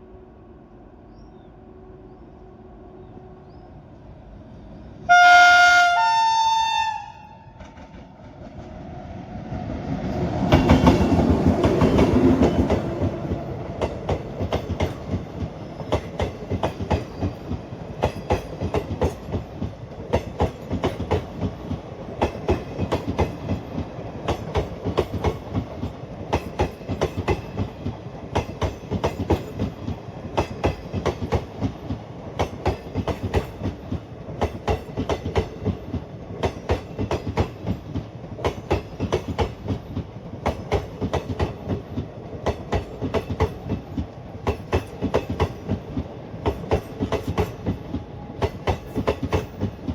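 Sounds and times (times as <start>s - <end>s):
locomotive rushing past: 2.8s - 49.9s
train horn blast: 5.1s - 7.6s
train wheels clickety-clack: 7.6s - 8.9s, 9.5s - 49.9s.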